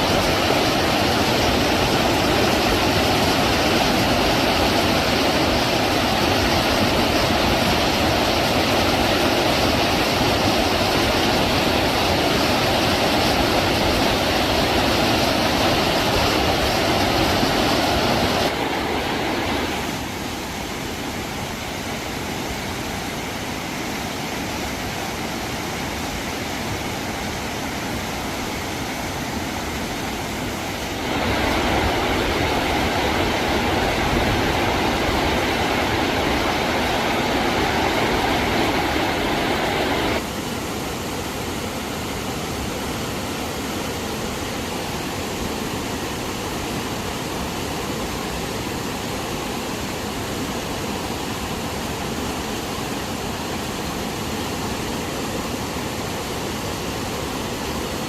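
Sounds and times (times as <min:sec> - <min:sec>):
loud rushing noise: 0:00.0 - 0:20.8, 0:28.7 - 0:40.3.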